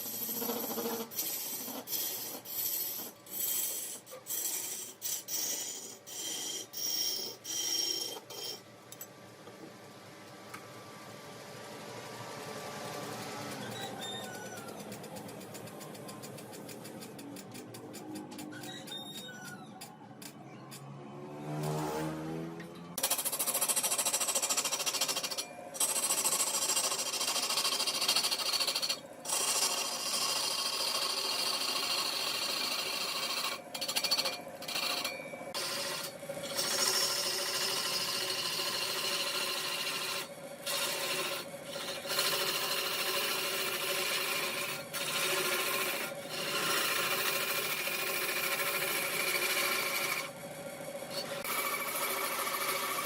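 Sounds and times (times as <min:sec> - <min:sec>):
lathe tool scraping wood: 0:00.0 - 0:08.6, 0:23.0 - 0:50.4, 0:51.1 - 0:53.0
wood lathe humming: 0:24.9 - 0:53.0.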